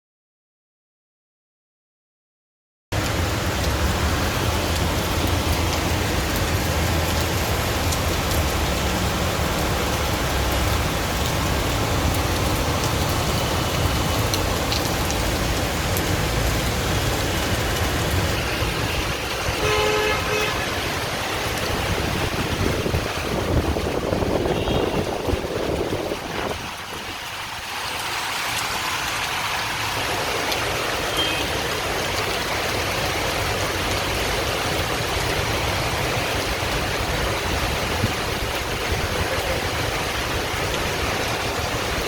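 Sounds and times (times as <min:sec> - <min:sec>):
heavy rain: 0:02.9 - 0:42.0
road traffic: 0:02.9 - 0:42.0
vehicle horn honking: 0:18.9 - 0:20.8, 0:24.5 - 0:25.1, 0:31.1 - 0:31.5.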